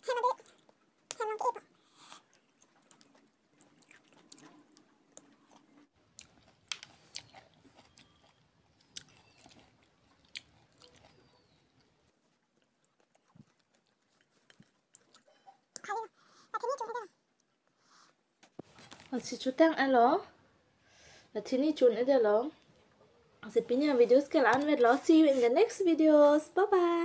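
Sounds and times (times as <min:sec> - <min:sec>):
chewing juicy orange: 0:00.4 - 0:16.5.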